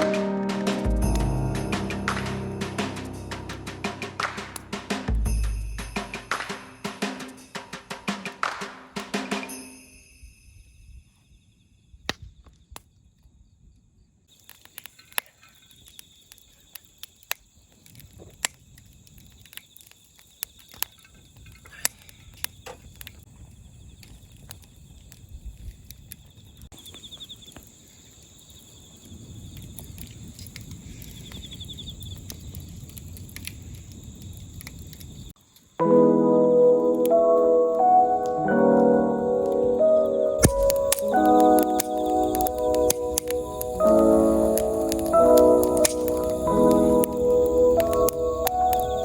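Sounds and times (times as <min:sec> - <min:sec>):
low noise: 0:00.0 - 0:07.4
crickets chirring: 0:13.0 - 0:49.0
sharp clicks and crackles: 0:14.4 - 0:23.2, 0:32.1 - 0:35.2, 0:40.4 - 0:49.0.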